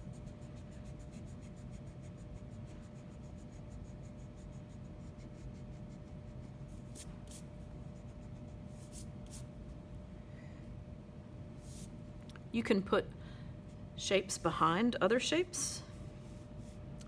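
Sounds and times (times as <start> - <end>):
pencil scratching on paper: 0.1 - 7.4.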